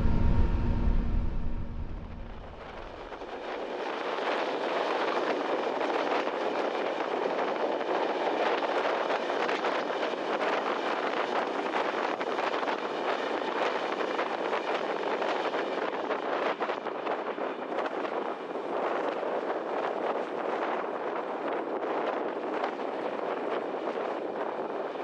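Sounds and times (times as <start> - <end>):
train rushing through tunnel: 0.0 - 10.2.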